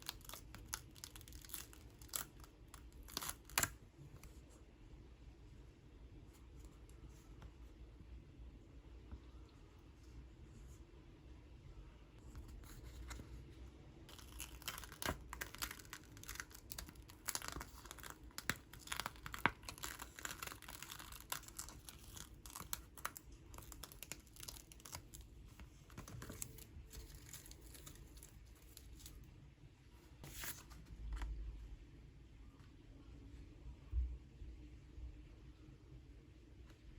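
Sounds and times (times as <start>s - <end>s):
crinkly sheet crackling and tearing: 0.0s - 3.7s, 14.1s - 29.2s.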